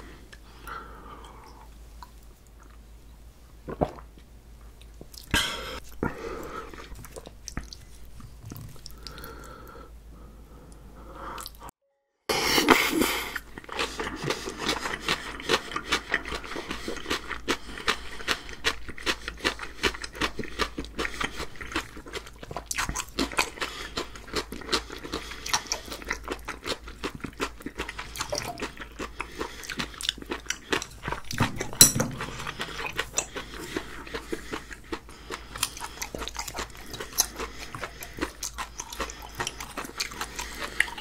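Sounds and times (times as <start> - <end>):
wet chewing smacks: 6.0 - 9.3, 13.4 - 41.0
drinking and mouth sounds: 12.3 - 41.0
noodles slurped: 12.5 - 41.0.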